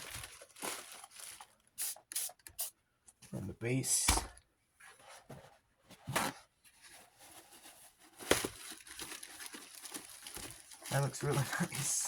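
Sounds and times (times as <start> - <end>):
spray bottle squirts: 1.8 - 2.7
faint rubbing and crinkling: 4.8 - 12.0.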